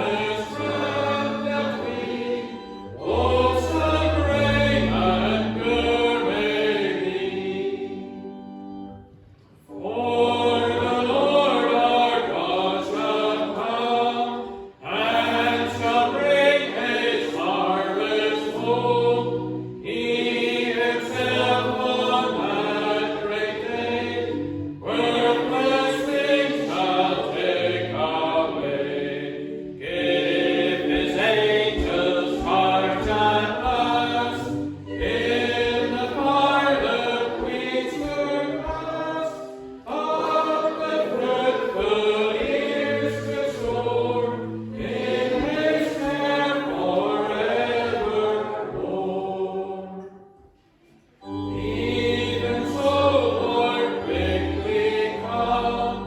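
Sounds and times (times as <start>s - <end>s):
low held organ notes: 0.0s - 49.1s, 51.2s - 56.0s
congregation singing a hymn: 0.0s - 56.0s.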